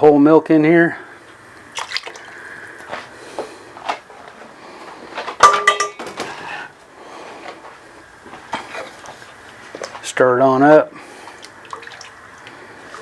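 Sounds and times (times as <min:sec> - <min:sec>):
metal knocking on cooking pot: 0:05.4 - 0:06.0
sharp metal clang: 0:05.4 - 0:06.3.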